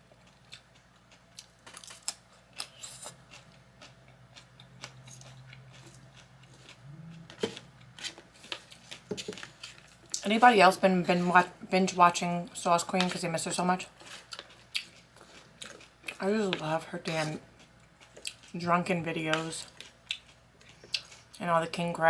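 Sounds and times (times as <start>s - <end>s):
close chewing with mouth clicks: 0.1s - 10.3s, 14.0s - 16.2s, 17.2s - 18.6s, 19.3s - 21.4s.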